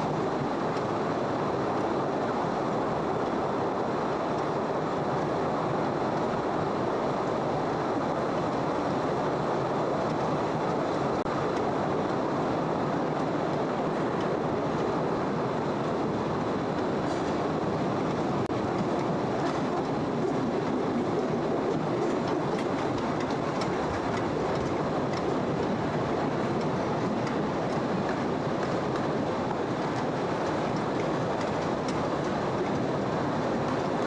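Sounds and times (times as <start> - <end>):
train wheels rattling on rails: 7.3 - 34.0.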